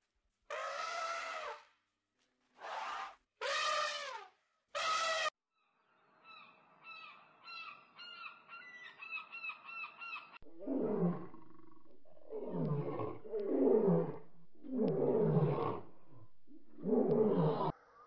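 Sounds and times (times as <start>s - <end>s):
tiger roaring: 10.4s - 17.7s.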